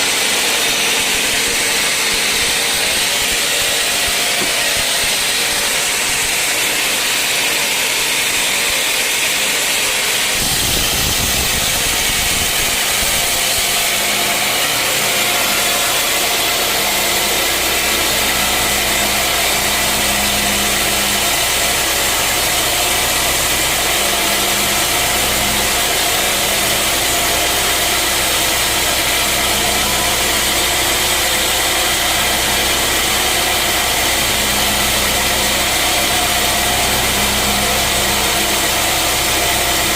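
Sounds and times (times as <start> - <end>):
sawmill machinery hiss: 0.0 - 39.9.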